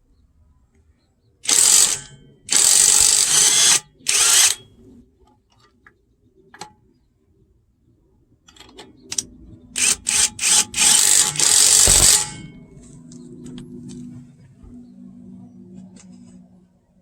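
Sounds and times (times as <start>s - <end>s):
impact wrench hammering: 1.5s - 4.6s, 9.8s - 12.6s.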